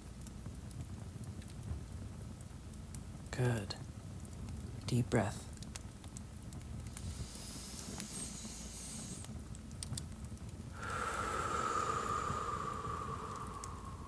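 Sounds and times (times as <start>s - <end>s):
fire crackling and popping: 0.0s - 14.0s
steady hiss: 6.5s - 14.0s.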